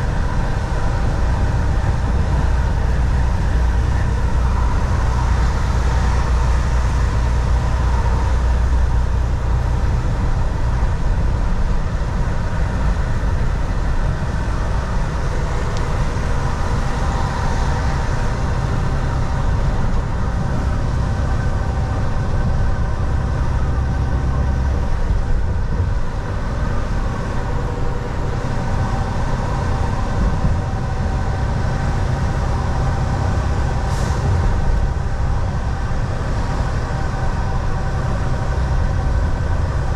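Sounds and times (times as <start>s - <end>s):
truck diesel engine drone: 0.0s - 39.9s.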